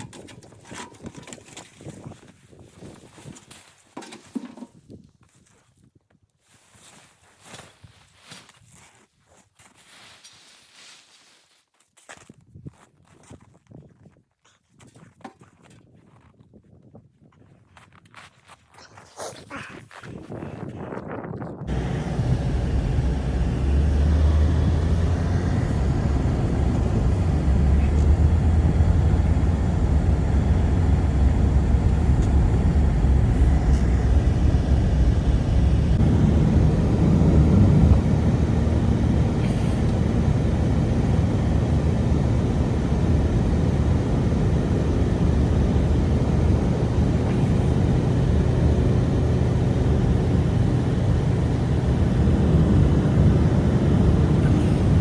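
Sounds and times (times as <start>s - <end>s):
strong blizzard wind blowing: 21.6s - 55.0s.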